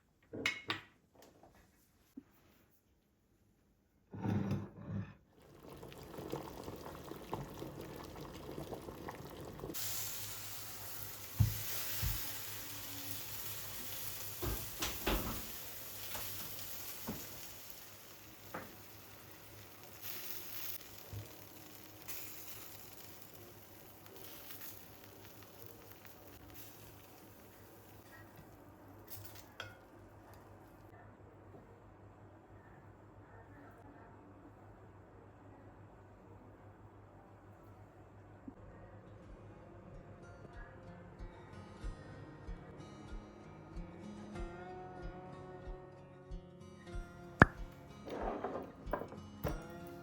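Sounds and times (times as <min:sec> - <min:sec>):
food sizzling in a pan: 0:05.4 - 0:30.7.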